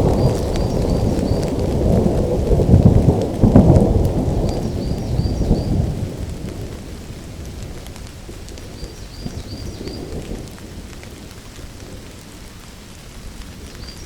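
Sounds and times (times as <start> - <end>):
rolling thunder: 0.0 - 12.2
steady rain: 0.0 - 14.0.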